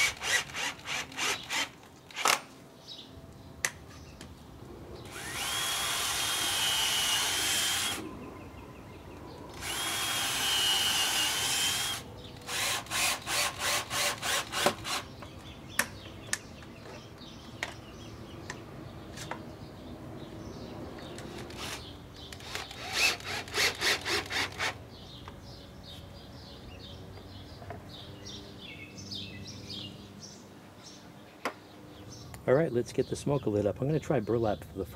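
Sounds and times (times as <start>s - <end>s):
power drill whining: 0.0s - 2.4s, 5.1s - 8.0s, 9.5s - 15.1s, 21.2s - 24.8s
hand saw strokes: 21.2s - 24.8s.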